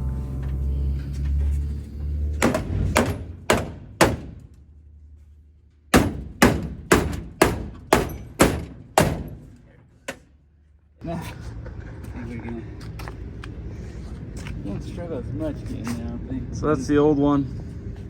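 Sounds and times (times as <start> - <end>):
guitar music: 0.0 - 2.0.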